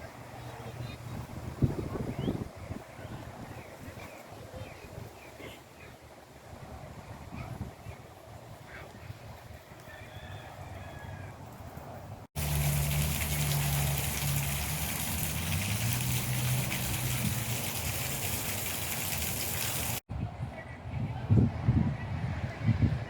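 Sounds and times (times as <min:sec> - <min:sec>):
running water rushing: 0:12.4 - 0:20.1.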